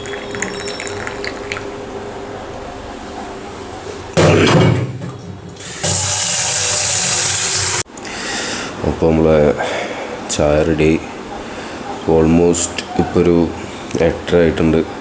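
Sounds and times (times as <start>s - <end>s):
tap water gushing into sink: 4.5s - 7.8s.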